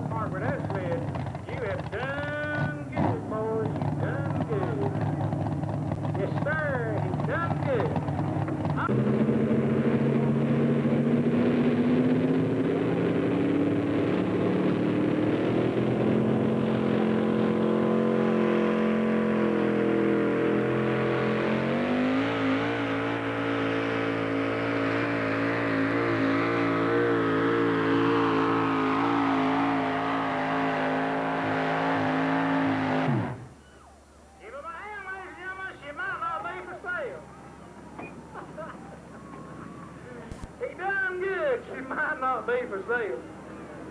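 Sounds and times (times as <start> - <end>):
truck engine revving under load: 0.0 - 33.6.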